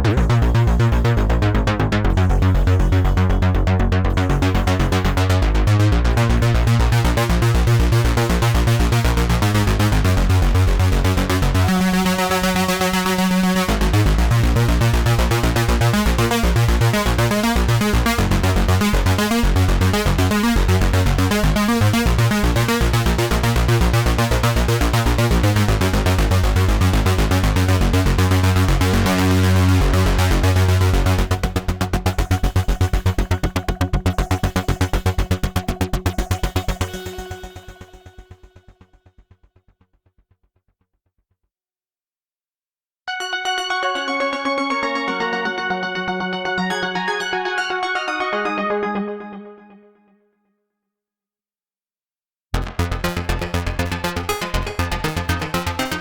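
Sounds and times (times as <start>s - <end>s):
low synth bass line: 0.0s - 38.4s, 52.6s - 56.0s
repeating synth note pattern: 43.1s - 49.9s
held buzzy synth chord: 43.1s - 50.0s.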